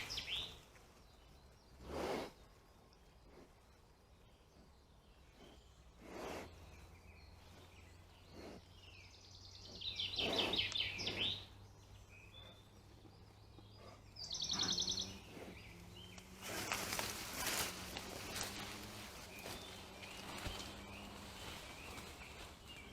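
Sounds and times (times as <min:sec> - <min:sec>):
songbird trilling: 0:00.0 - 0:00.6, 0:08.8 - 0:17.0
close rustling and crackling: 0:16.1 - 0:22.9.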